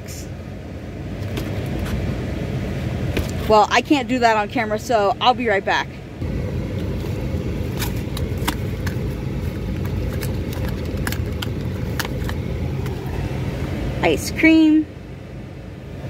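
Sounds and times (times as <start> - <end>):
car engine idling: 0.0 - 16.0
packaging clicks: 7.7 - 13.0.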